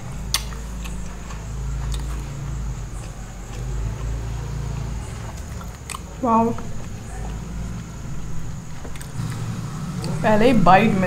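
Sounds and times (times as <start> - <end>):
muffled chewing: 0.2 - 10.2
sharp mouth clicks: 0.3 - 1.0.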